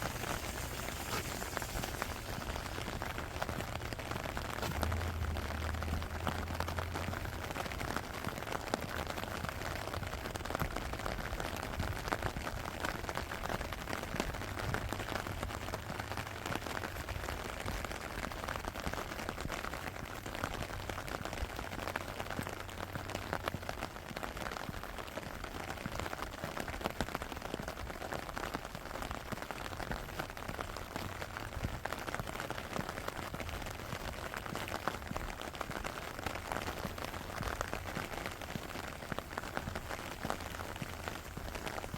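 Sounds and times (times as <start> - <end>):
low hum: 0.0 - 8.4
rain falling: 0.0 - 41.9.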